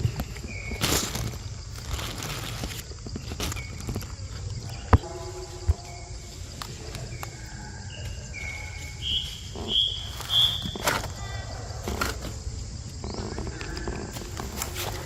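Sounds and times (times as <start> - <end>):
high-pitched insect chorus: 0.0 - 15.0
high whistle-like chirps: 5.0 - 11.2.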